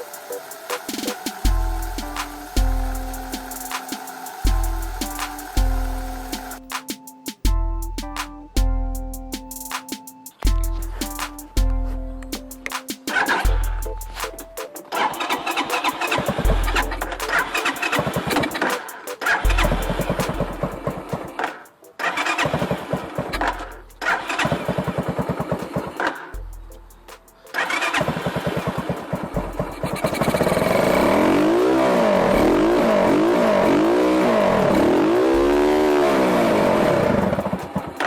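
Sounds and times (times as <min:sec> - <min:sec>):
mini bike engine revving: 0:29.7 - 0:37.4.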